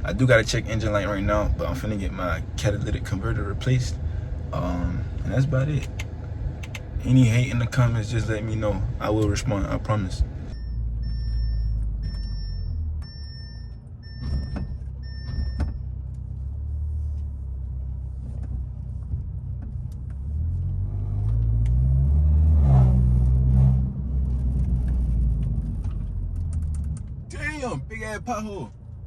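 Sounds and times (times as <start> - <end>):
car exhaust accelerating: 0.0 - 29.0
beeping chime: 10.5 - 15.7.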